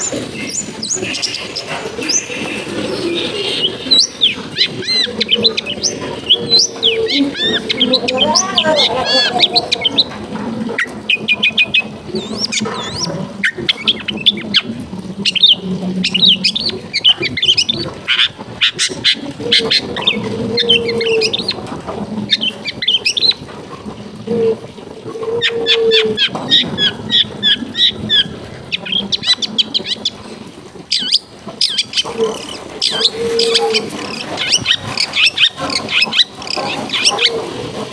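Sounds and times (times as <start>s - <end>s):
bird singing chirps and trills: 0.0s - 10.1s, 10.8s - 21.6s, 30.9s - 37.5s
lower held bird tones: 0.0s - 21.6s.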